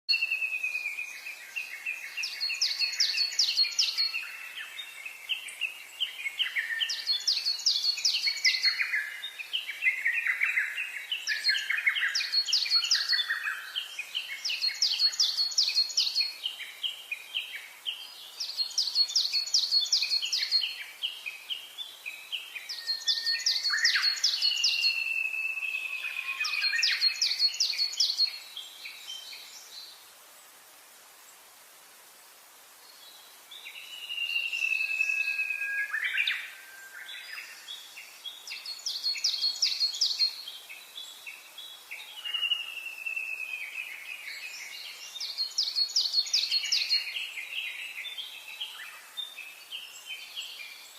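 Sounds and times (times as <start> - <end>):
songbirds singing: 0.1 - 30.6, 31.2 - 50.9.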